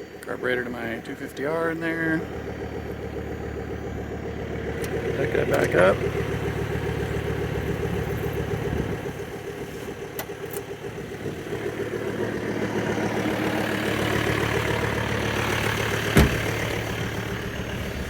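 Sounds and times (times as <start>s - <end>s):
diesel engine idling: 0.0s - 18.0s
sharp thump: 16.1s - 16.6s.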